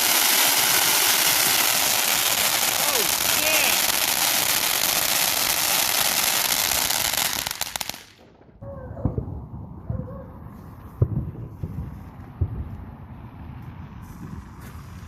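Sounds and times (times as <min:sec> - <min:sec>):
firework crackling and hissing: 0:00.0 - 0:08.4
low rumble: 0:08.2 - 0:15.0.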